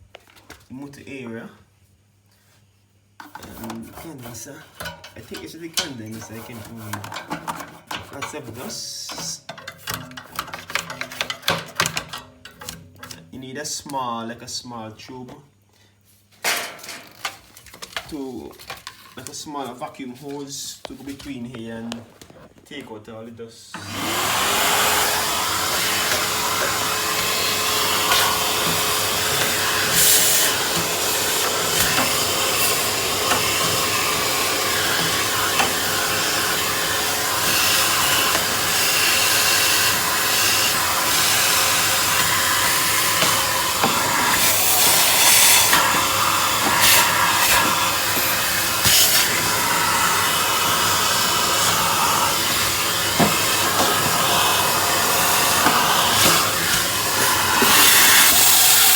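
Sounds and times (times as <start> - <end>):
vacuum cleaner running: 23.7 - 58.9.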